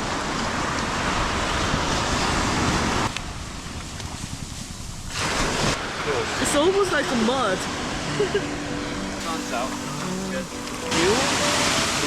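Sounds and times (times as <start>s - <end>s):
ocean surf breaking: 9.0s - 12.0s.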